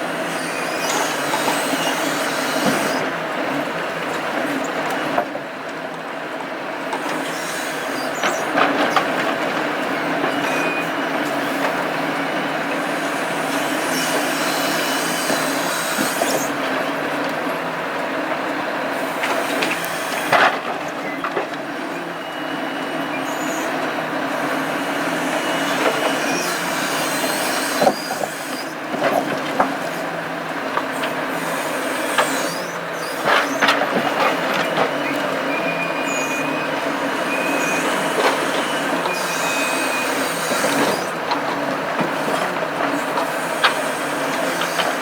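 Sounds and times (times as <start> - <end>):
metallic squeals: 23.1 - 23.8, 34.6 - 41.1.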